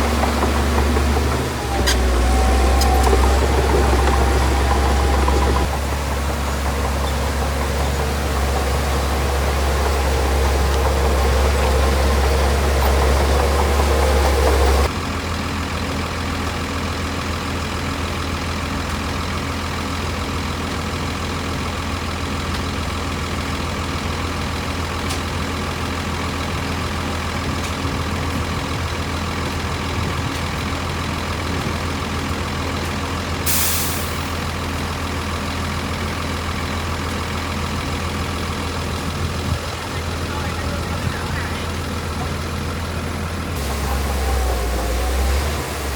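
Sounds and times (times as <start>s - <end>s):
heavy diesel engine running: 0.0s - 45.9s
air hiss: 33.5s - 34.3s, 43.6s - 45.9s.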